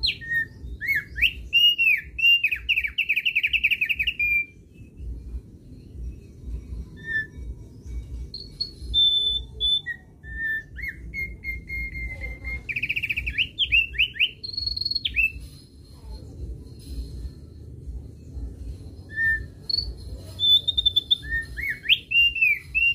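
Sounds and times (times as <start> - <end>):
bird singing whistled notes: 0.0 - 15.8, 18.1 - 22.9
low rumble: 4.0 - 21.6.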